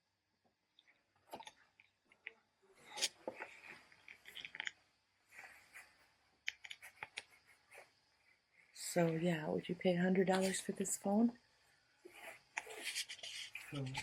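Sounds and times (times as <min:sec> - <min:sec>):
small clicks and rustles: 0:00.7 - 0:08.8, 0:12.1 - 0:14.0.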